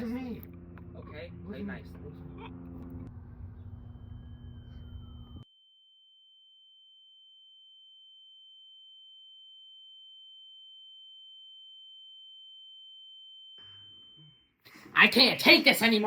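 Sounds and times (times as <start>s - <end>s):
fainter lower tone: 0.0s - 5.4s, 13.6s - 14.5s.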